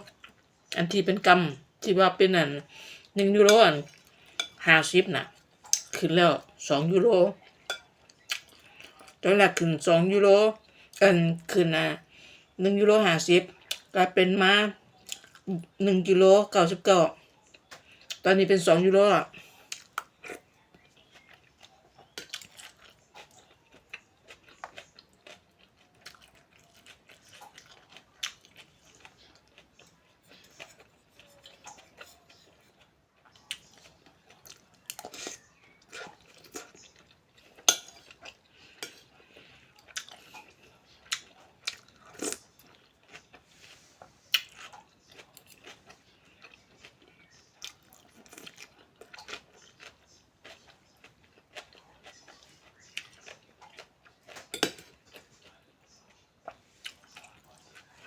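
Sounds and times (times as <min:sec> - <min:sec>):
cutlery clinking against bowl: 0:03.5 - 0:04.6, 0:07.7 - 0:08.0, 0:37.6 - 0:38.2, 0:54.4 - 0:55.0
chewing: 0:19.4 - 0:58.0.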